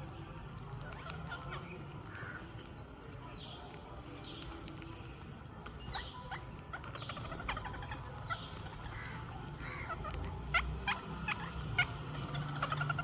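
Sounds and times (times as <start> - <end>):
parakeets calling: 5.6 - 13.0.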